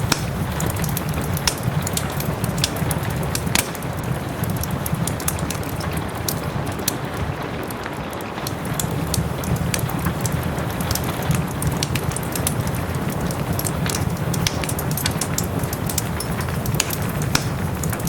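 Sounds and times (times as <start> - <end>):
rain: 0.0 - 18.0
wood fire crackling: 0.0 - 18.0.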